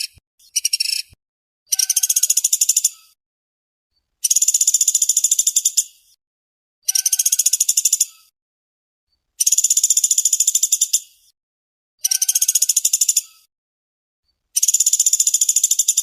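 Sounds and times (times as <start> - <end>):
woodpecker chattering trill: 0.0 - 3.2, 4.2 - 6.0, 6.8 - 8.3, 9.4 - 11.1, 12.0 - 13.5, 14.6 - 16.0.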